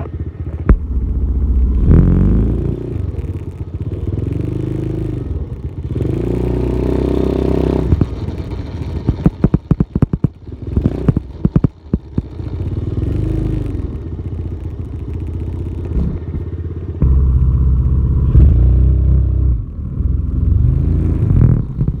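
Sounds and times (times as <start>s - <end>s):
dirt bike engine revving: 0.0s - 14.6s, 17.0s - 22.0s
sharp clattering knocks: 7.8s - 12.5s.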